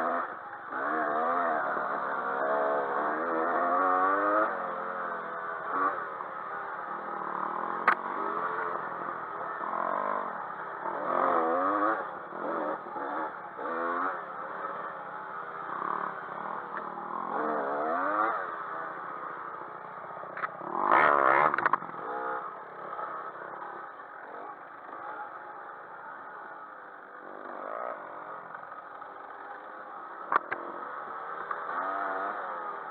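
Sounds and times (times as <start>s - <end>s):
dirt bike engines revving: 0.0s - 32.9s.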